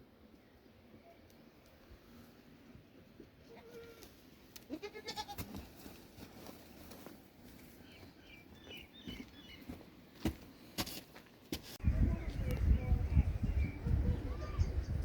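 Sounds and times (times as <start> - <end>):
goat bleating: 3.4 - 5.5.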